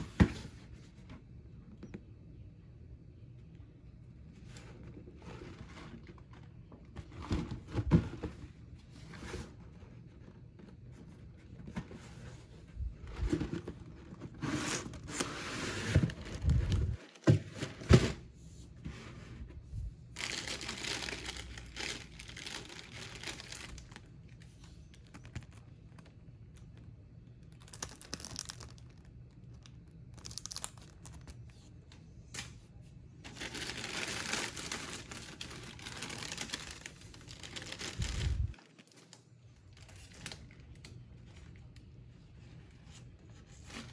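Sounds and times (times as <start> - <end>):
wrapping rustling and tearing: 20.2 - 26.1, 27.5 - 31.5, 33.2 - 41.8.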